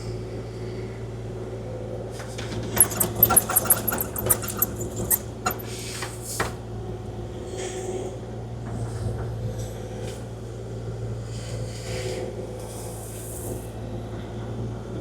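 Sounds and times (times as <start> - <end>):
mini excavator running: 2.4 - 5.9
sharp clicks and rattles: 2.5 - 5.8.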